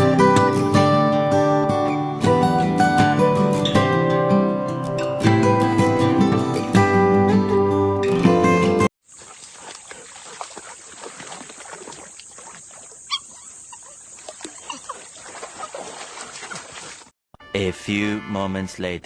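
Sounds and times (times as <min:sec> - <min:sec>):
puppy whimpering: 0:13.1 - 0:15.0.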